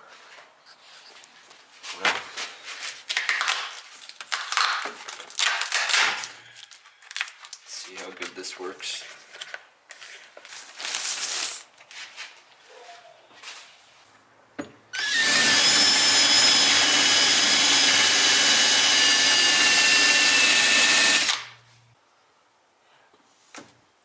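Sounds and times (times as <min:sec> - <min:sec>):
power drill with high motor whine: 0:15.0 - 0:21.6.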